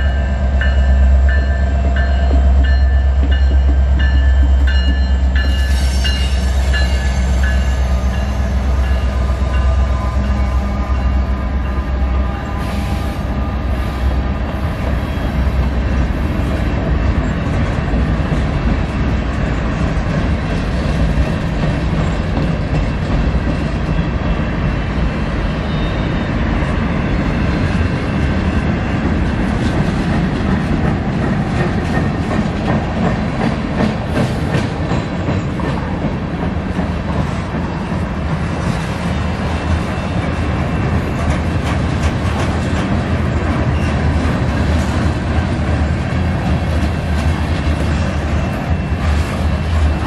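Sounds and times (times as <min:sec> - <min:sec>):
rumble of rail cars: 0:00.0 - 0:50.0
wheels clicking over rail joints: 0:39.7 - 0:50.0.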